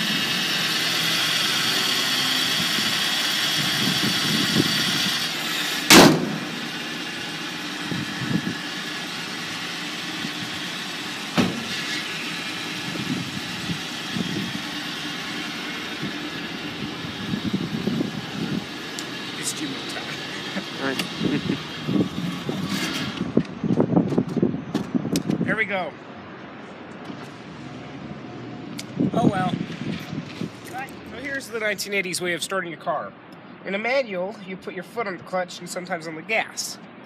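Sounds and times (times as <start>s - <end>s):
car engine running: 0.0s - 25.4s
loud thump: 5.9s - 6.6s, 11.3s - 11.8s.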